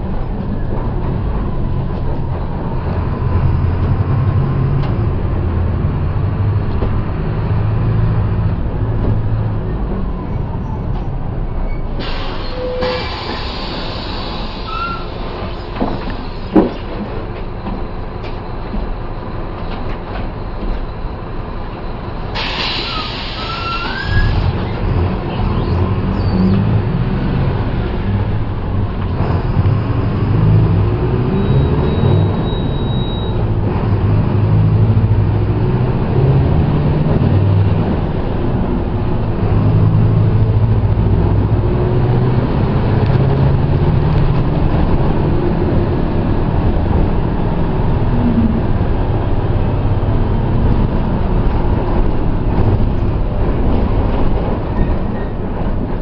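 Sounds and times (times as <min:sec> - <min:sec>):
bus diesel engine running: 0:00.0 - 0:56.0
air hiss: 0:12.0 - 0:15.3, 0:22.4 - 0:23.9.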